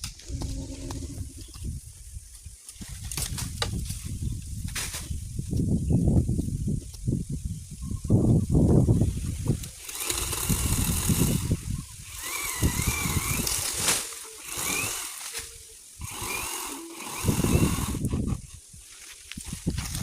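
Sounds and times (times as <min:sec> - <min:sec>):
strong wind gusting on microphone: 0:00.0 - 0:13.8, 0:16.0 - 0:20.0
short rising tones: 0:00.2 - 0:01.5.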